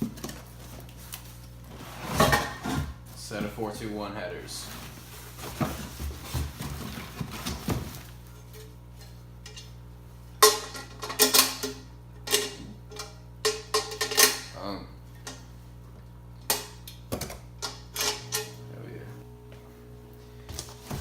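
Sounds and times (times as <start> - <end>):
rustling: 4.4 - 8.2.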